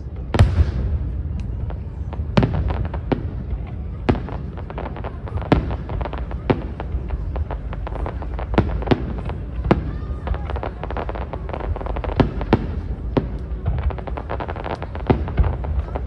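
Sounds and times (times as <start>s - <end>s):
low rumble: 0.0s - 4.1s
crackling firework pops: 0.3s - 16.0s.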